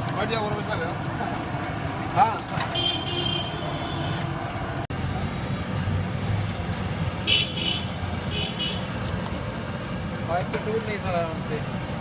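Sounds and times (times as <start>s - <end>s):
street traffic rumbling: 0.0s - 12.0s
vehicle horn tooting: 2.7s - 4.2s, 7.3s - 8.9s.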